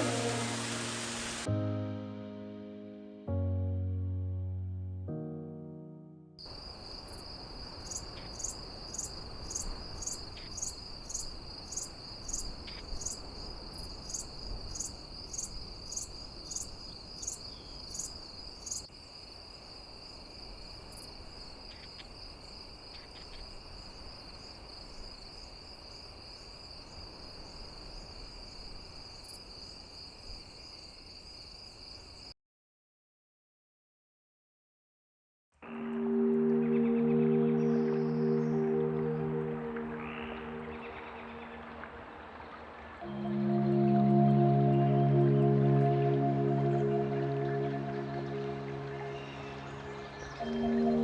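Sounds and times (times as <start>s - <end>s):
crickets trilling: 6.5s - 32.3s
sharp cricket chirp: 6.5s - 32.3s.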